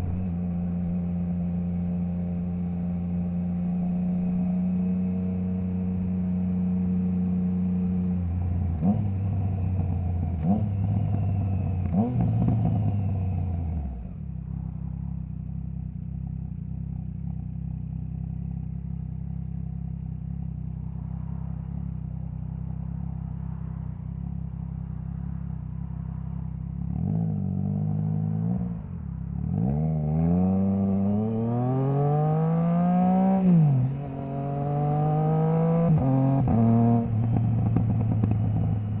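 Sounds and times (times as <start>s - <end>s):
motorcycle engine revving: 0.0s - 24.4s, 25.0s - 39.0s
engine rev blips on downshifts: 8.7s - 14.0s.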